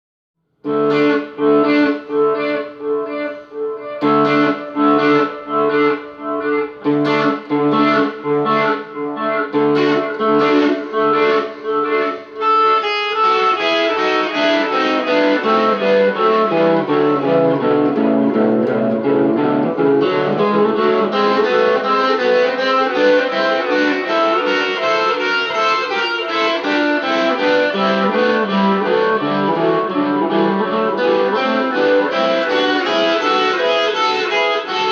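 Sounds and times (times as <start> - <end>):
rock guitar solo: 0.6 - 34.9.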